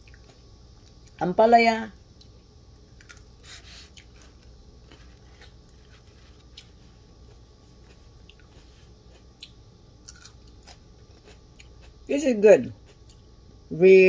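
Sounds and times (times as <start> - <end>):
low room hum: 0.0 - 14.0
faint chewing with wet mouth clicks: 3.9 - 12.0.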